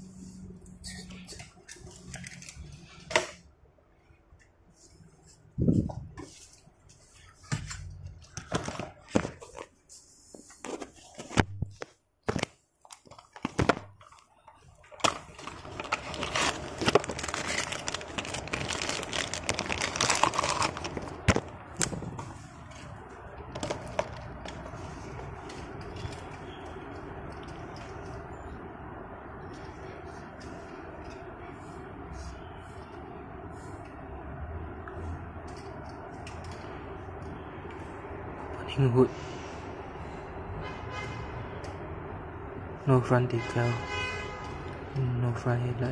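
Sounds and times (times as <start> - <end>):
packaging crinkling and rustling: 10.7 - 23.0.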